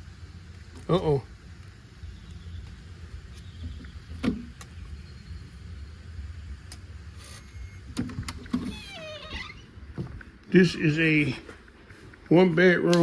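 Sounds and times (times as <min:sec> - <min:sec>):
door creaking: 0:07.2 - 0:10.2.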